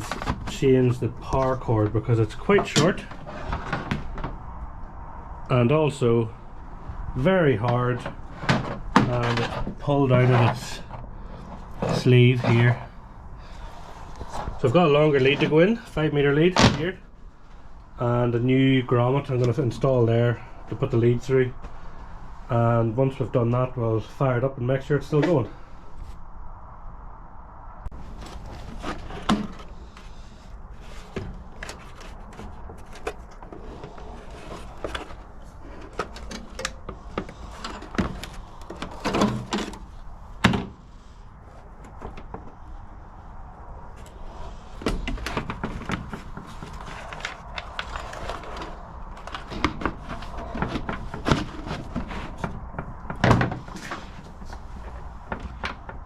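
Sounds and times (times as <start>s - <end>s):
handling parts and tools: 0.0s - 4.4s, 7.2s - 17.6s, 27.9s - 43.0s, 43.9s - 56.0s.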